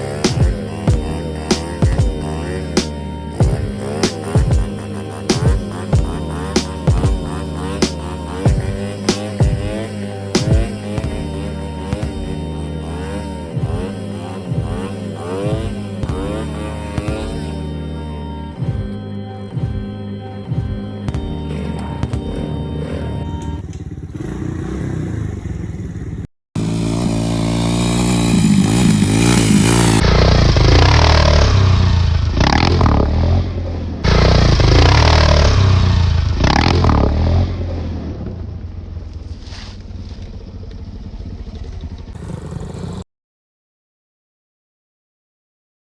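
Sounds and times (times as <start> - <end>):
dirt bike engine revving: 0.0 - 17.6, 21.4 - 33.5, 34.1 - 37.6, 42.2 - 43.0
background music: 0.0 - 23.6.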